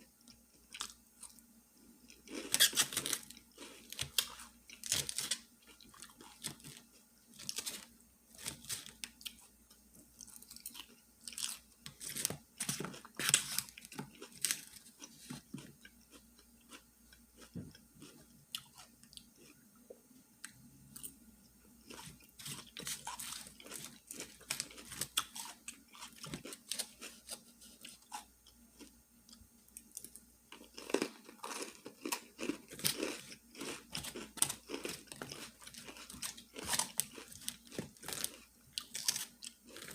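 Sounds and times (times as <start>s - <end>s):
chewing and crunching food: 0.1s - 39.9s.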